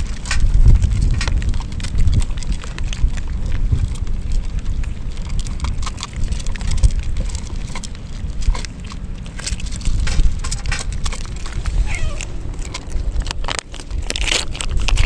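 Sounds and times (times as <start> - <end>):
low rain rumble: 0.0 - 15.0.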